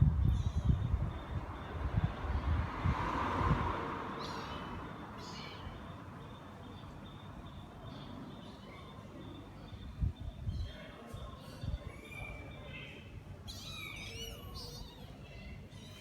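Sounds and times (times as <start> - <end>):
kittens mewing: 4.1 - 5.5, 13.4 - 16.0.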